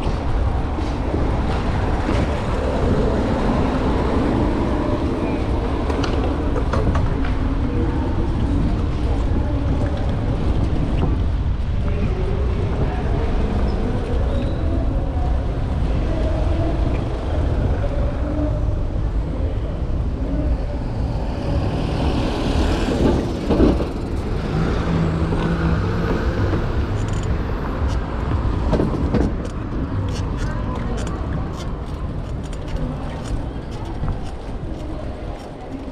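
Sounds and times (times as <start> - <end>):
street traffic rumble: 0.0 - 35.9.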